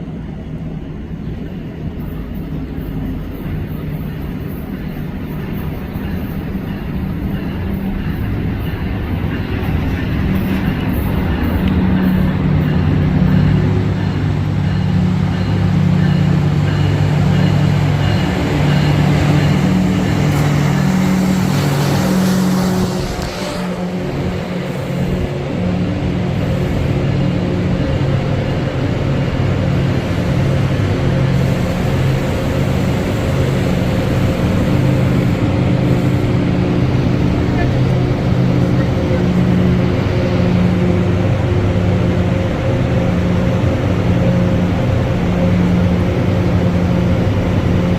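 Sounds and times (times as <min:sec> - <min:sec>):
diesel locomotive engine droning: 0:00.0 - 0:47.9.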